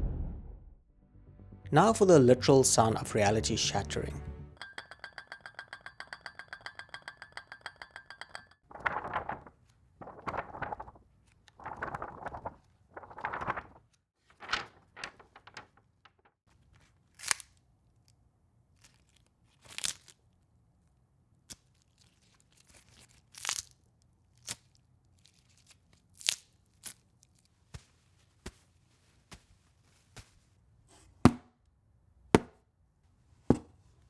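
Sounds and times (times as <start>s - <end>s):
paper tearing and crumpling: 8.7s - 15.8s, 17.1s - 17.6s, 18.8s - 20.2s.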